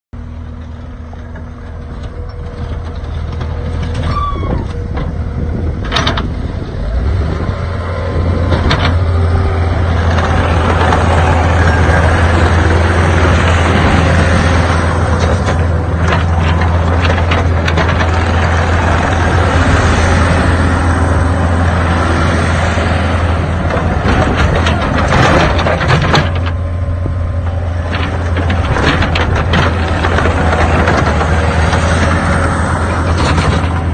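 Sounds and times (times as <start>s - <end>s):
diesel engine running: 0.2s - 33.9s
sharp clanks and knocks: 0.5s - 6.4s, 8.4s - 9.2s, 10.0s - 19.1s, 23.5s - 33.9s.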